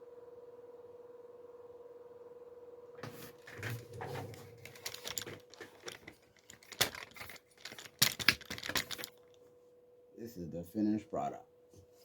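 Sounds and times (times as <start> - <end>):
faint electrical hum: 0.0 - 12.0
objects being handled: 3.0 - 9.4.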